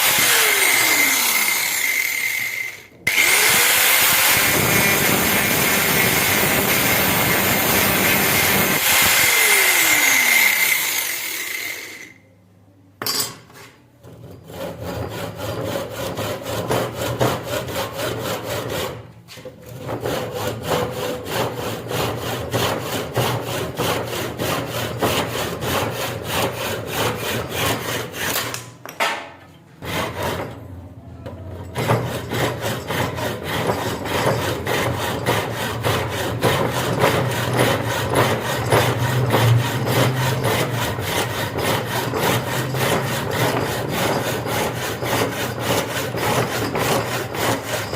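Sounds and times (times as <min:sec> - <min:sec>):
hand tool rasping strokes: 0:00.0 - 0:12.1, 0:13.6 - 0:28.7, 0:31.6 - 0:47.9
power tool spinning down: 0:00.0 - 0:12.2.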